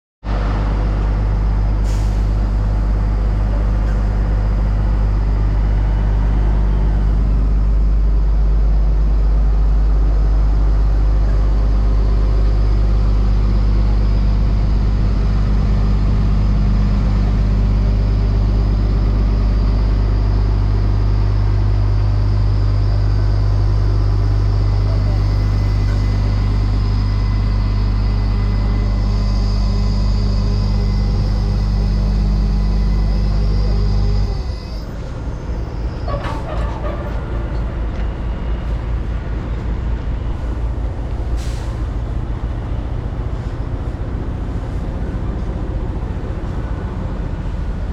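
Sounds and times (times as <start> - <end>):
paver diesel engine running: 0.2 - 47.9.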